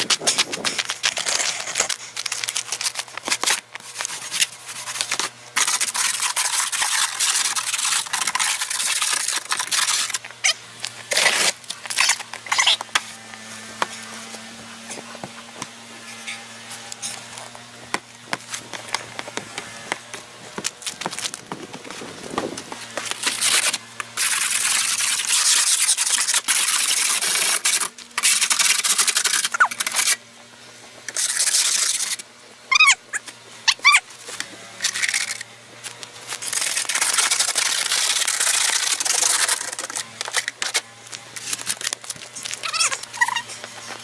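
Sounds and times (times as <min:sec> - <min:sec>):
brush scraping snow off vehicle: 0:00.0 - 0:30.2.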